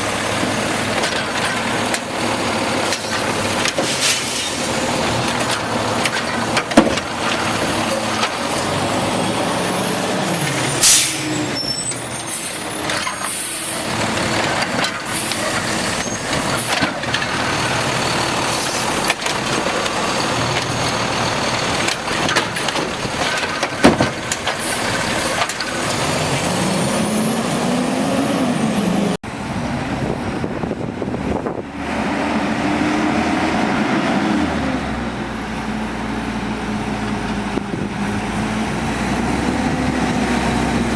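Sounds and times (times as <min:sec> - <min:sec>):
garbage truck diesel engine revving: 0:00.0 - 0:40.9
air brakes hiss: 0:10.8 - 0:11.6.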